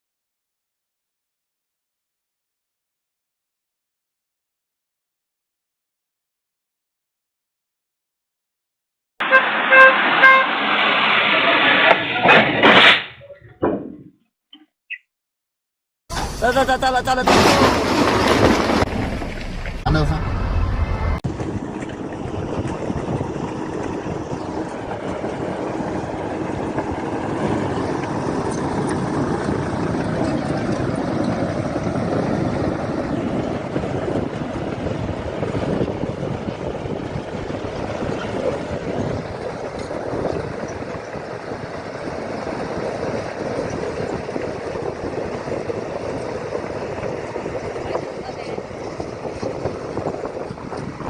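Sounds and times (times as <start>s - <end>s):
road noise: 9.2s - 13.1s, 16.1s - 51.0s
vehicle engine rumble: 16.1s - 51.0s.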